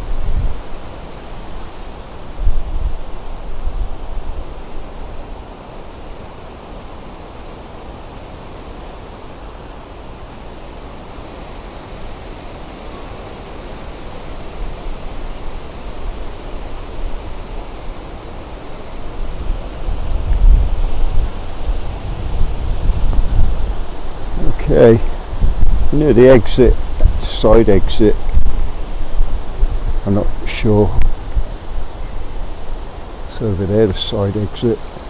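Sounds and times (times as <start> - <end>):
wind buffeting microphone: 0.0 - 5.4, 13.9 - 35.0
gusty wind rushing: 0.0 - 35.0.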